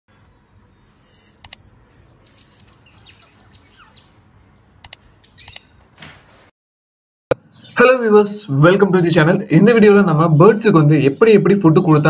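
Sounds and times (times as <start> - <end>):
faint bird chirps: 0.1 - 4.2
high whistled bird calls: 0.2 - 4.2
sharp clicks: 1.4 - 1.7, 4.8 - 5.7.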